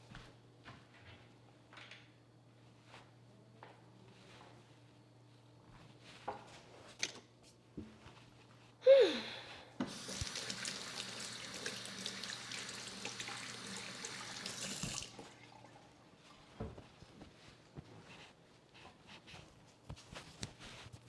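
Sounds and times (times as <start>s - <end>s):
tap running into a sink: 9.8s - 15.3s.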